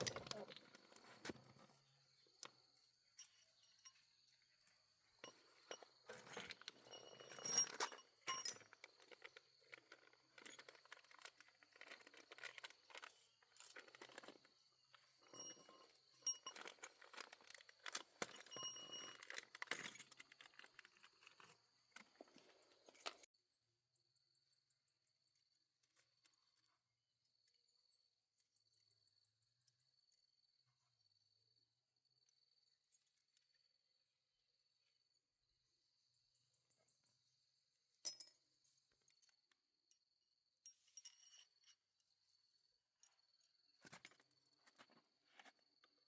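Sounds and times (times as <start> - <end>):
small hard objects clinking: 5.2 - 21.5.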